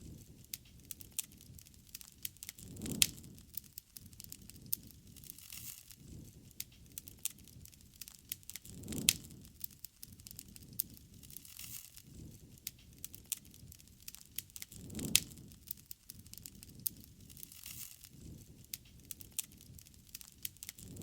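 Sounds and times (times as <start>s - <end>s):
campfire crackling: 0.0s - 21.0s
low flame rumble: 0.0s - 21.0s.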